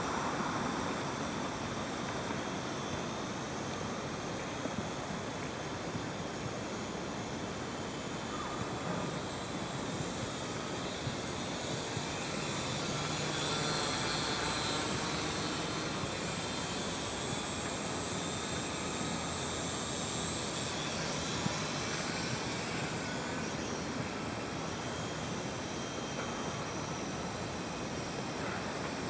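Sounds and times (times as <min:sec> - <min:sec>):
outdoor noise: 0:00.0 - 0:29.0
drone propellers whining: 0:07.2 - 0:29.0.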